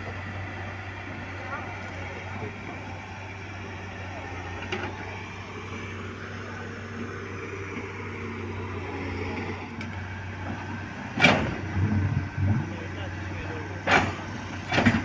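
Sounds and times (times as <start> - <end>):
diesel engine running: 0.0 - 15.0
knocks and clatters: 11.2 - 12.7, 13.8 - 15.0.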